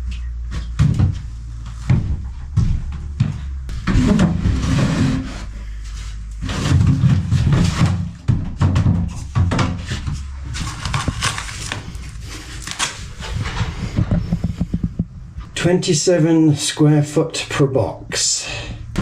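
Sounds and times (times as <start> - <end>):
knocks and clattering: 6.6 - 15.1.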